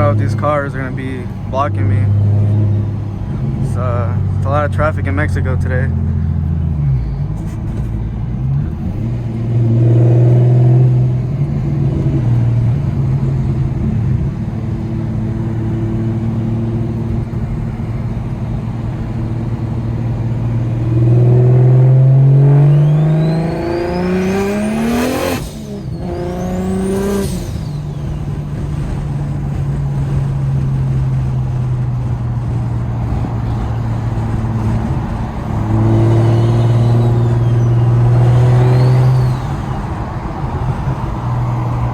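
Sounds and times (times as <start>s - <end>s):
car engine drone from cabin: 0.0s - 41.9s
turbo whistles: 22.6s - 28.6s, 35.9s - 40.2s.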